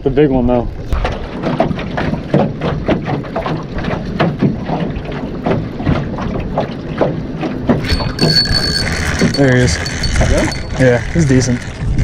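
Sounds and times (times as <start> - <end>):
wind buffeting microphone: 0.4 - 12.0
water slapping against boat hull: 0.7 - 9.4.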